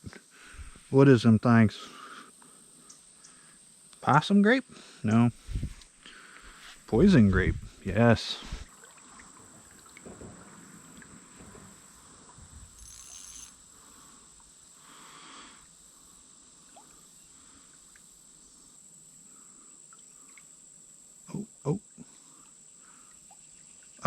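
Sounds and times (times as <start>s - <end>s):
high-pitched insect drone: 12.7s - 17.6s.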